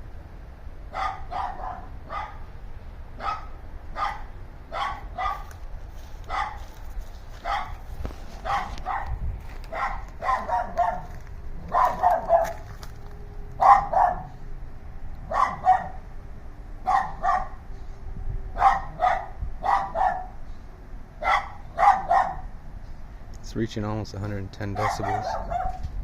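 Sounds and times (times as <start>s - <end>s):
dogs barking: 0.9s - 2.5s, 3.2s - 5.6s, 6.2s - 13.0s, 13.6s - 14.4s, 15.2s - 16.0s, 16.8s - 17.6s, 18.6s - 20.4s, 21.2s - 22.5s, 24.7s - 25.9s.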